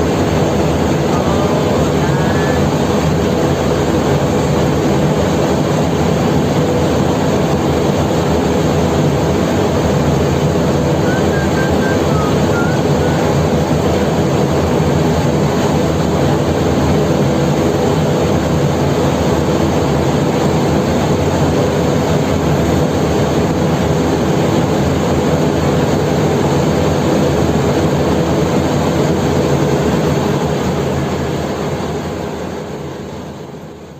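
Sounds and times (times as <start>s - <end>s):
heavy engine droning: 0.0s - 33.9s.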